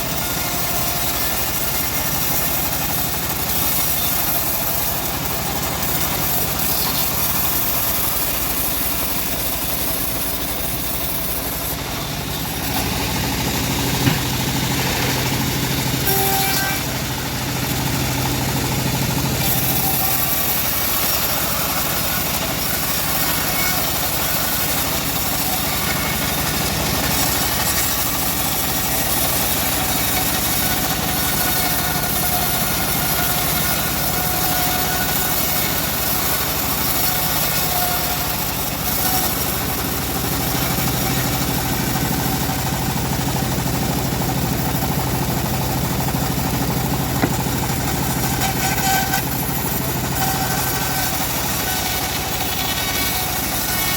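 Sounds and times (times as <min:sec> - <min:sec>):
sawmill engine droning: 0:00.0 - 0:53.9
short knock: 0:47.2 - 0:47.4.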